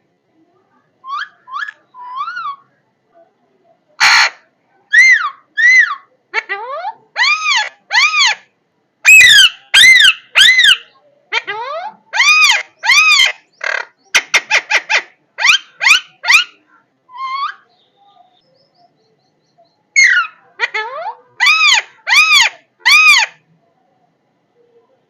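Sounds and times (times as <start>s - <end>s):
parrot squawking: 4.0s - 17.7s, 20.0s - 23.4s.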